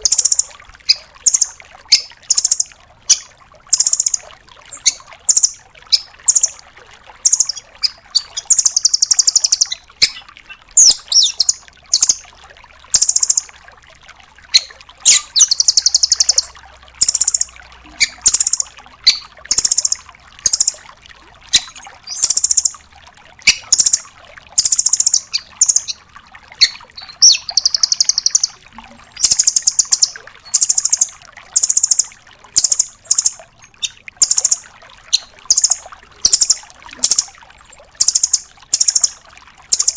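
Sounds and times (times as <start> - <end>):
bird trills and chip notes: 0.0 - 6.6, 7.2 - 12.2, 13.0 - 13.5, 14.5 - 20.8, 24.6 - 26.0, 26.6 - 28.6, 29.2 - 37.3, 38.0 - 39.9.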